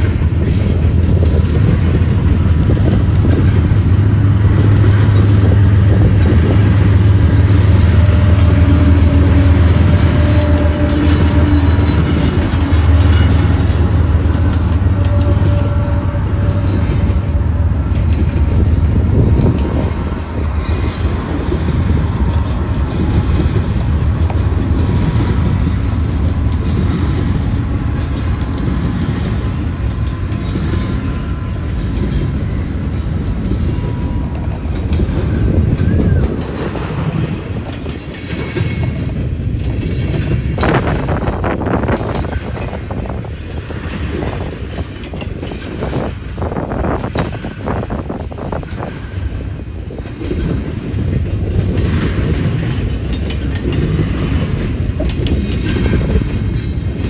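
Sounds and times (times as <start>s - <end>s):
diesel locomotive rumble: 0.0s - 57.0s
train cars rolling on rails: 0.0s - 57.0s.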